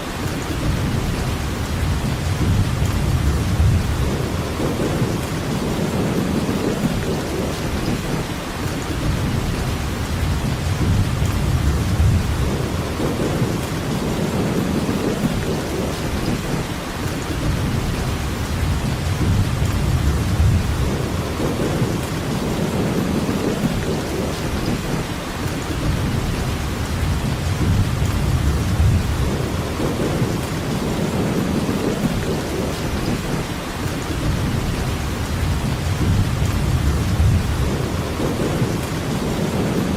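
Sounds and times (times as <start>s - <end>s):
steady rainfall: 0.0s - 39.9s
low rumble: 0.6s - 6.4s, 34.2s - 39.4s.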